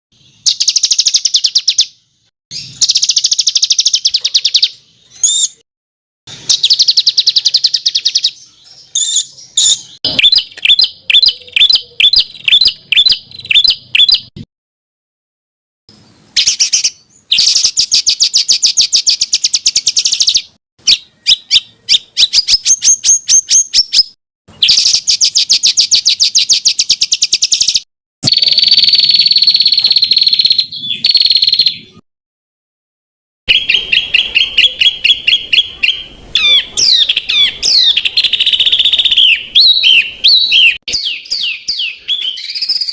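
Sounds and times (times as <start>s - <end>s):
songbird singing trills: 0.2s - 5.6s, 6.3s - 14.3s, 16.4s - 32.0s, 33.5s - 42.9s.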